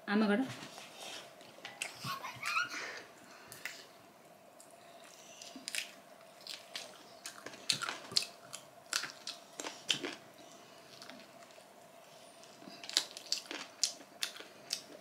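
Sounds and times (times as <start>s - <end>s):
faint steady hum: 0.0s - 15.0s
close chewing and biting: 5.3s - 10.2s, 12.4s - 15.0s.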